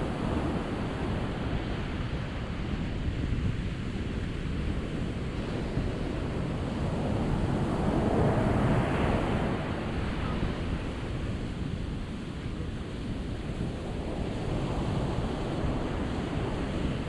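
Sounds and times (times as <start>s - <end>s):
ocean waves breaking: 5.5s - 11.2s.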